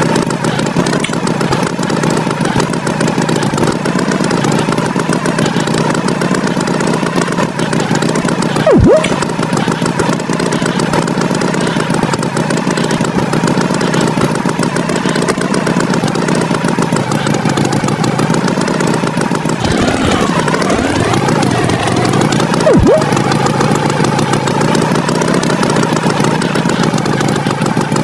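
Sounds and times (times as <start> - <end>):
engine running: 0.0 - 28.0
gliding tones: 8.6 - 9.4, 22.6 - 23.2
swooping sound effect: 8.6 - 9.4, 22.6 - 23.3.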